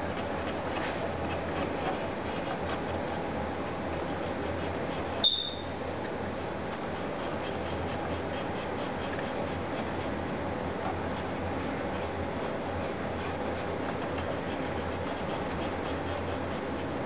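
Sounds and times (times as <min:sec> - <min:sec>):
background hum and hiss: 0:00.0 - 0:17.0
high-pitched chirp: 0:05.2 - 0:05.7.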